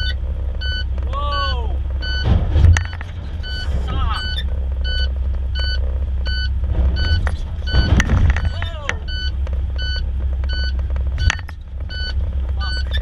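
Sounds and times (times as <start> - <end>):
heavy vehicle engine idling: 0.0 - 13.0
reversing alarm beeps: 0.0 - 13.0.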